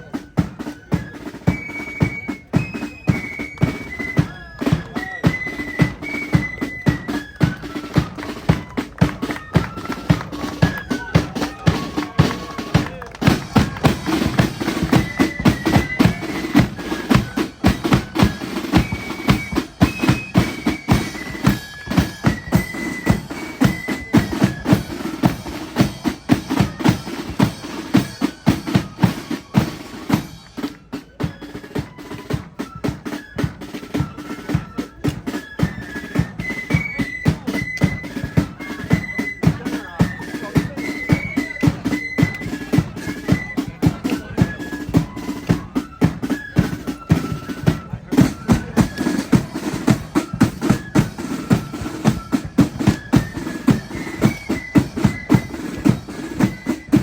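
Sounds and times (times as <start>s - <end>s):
high flute melody: 0.0s - 57.0s
snare and bass drum beats: 0.0s - 57.0s.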